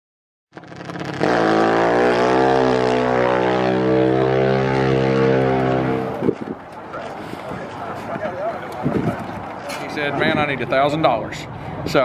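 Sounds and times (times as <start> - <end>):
motorcycle engine starting and idling: 0.6 - 2.2.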